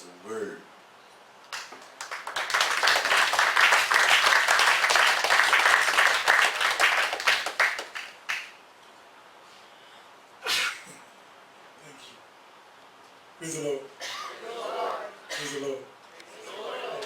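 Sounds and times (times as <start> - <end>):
congregation applauding: 1.5 - 8.6.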